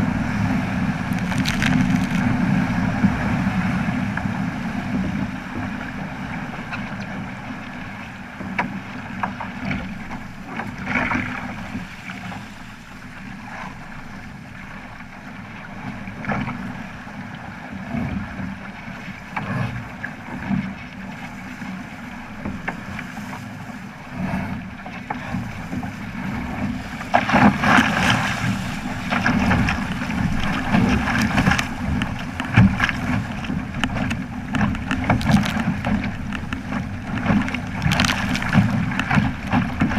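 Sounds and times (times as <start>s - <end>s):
wind on microphone: 0.0s - 8.5s, 23.1s - 39.9s
water rushing along boat hull: 0.0s - 39.9s.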